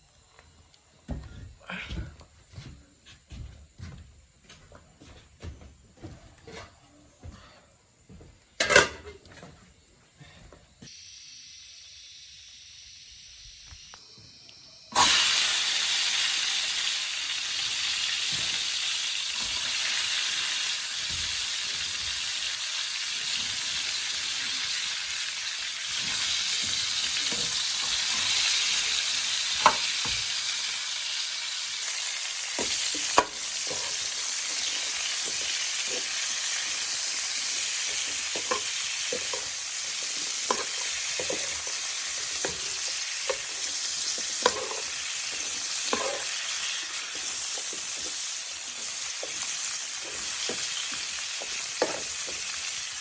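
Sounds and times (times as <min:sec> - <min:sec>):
sizzling hiss: 0:10.7 - 0:53.0.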